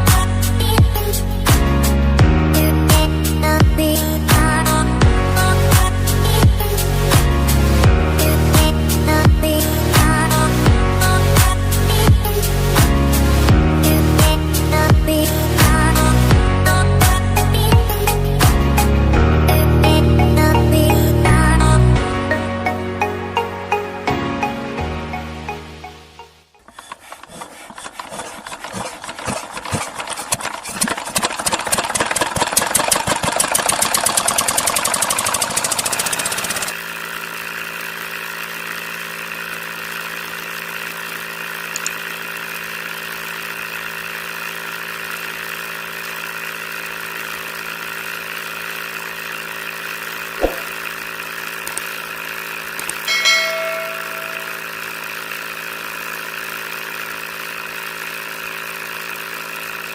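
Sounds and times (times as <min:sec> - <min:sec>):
model engine running: 0:26.6 - 0:59.9
sharp click: 0:41.7 - 0:42.0, 0:50.4 - 0:50.8, 0:52.8 - 0:54.6.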